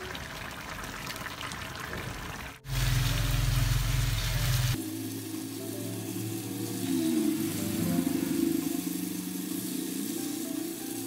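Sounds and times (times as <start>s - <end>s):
sauce bubbling and sizzling: 0.0s - 11.0s
loud low drone: 2.7s - 10.7s.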